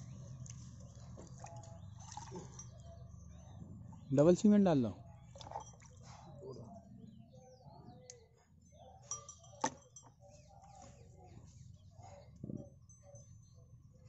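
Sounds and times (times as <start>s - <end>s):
faint bird chirps: 4.9s - 14.0s.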